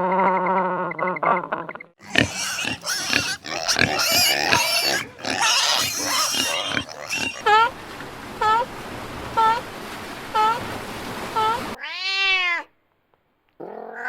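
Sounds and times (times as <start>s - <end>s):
pigs squealing and grunting: 2.0s - 7.7s.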